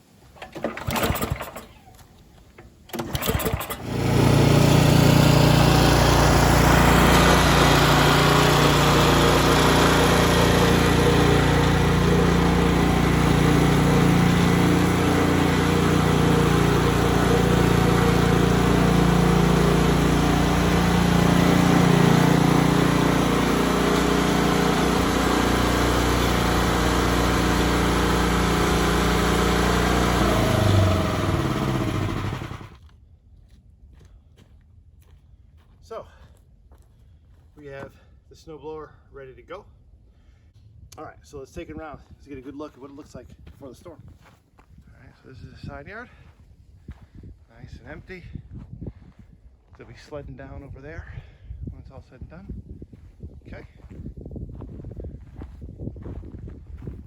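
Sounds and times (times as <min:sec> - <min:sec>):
snowblower engine running: 0:00.4 - 0:01.7, 0:02.9 - 0:32.8
electric starter cranking: 0:00.4 - 0:32.8.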